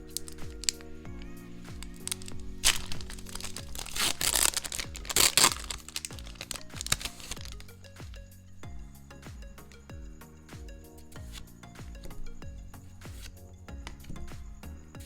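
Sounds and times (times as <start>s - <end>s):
packaging crinkling: 0.0s - 1.0s, 1.8s - 7.8s
background music with beat: 0.0s - 15.0s.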